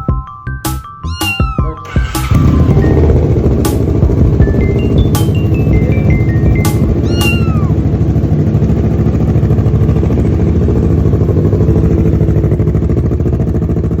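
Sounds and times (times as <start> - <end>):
motorcycle engine idling: 1.9 - 14.0.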